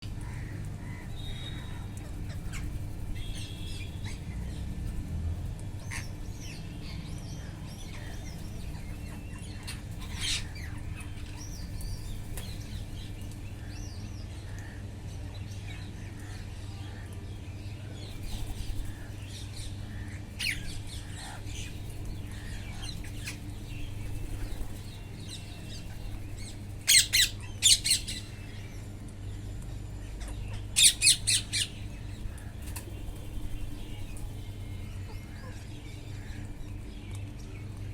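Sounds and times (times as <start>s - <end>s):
steady low hum: 0.0s - 37.9s
parrots squawking: 26.9s - 28.5s, 30.8s - 31.8s.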